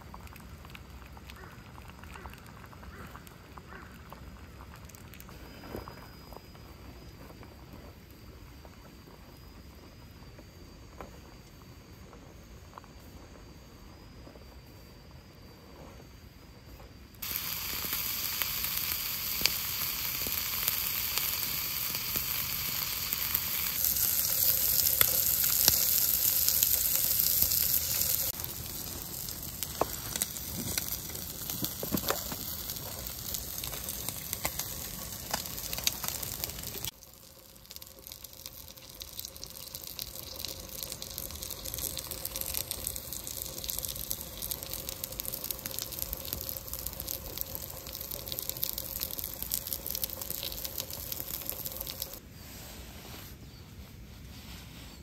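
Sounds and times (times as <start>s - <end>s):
food sizzling in a skillet: 17.2s - 52.2s.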